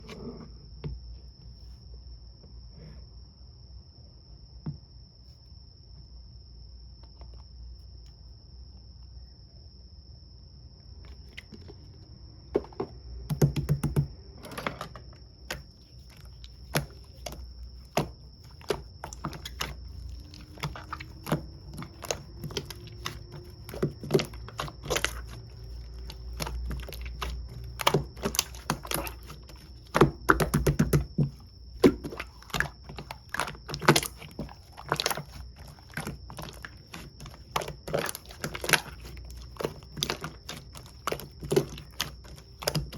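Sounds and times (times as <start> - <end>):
slime squished by hand: 13.3 - 42.9.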